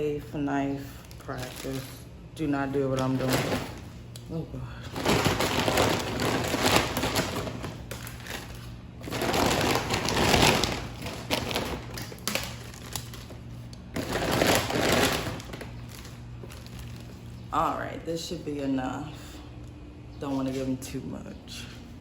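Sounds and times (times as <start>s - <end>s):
bag rustling: 1.2s - 2.0s, 2.8s - 4.0s, 4.9s - 17.4s.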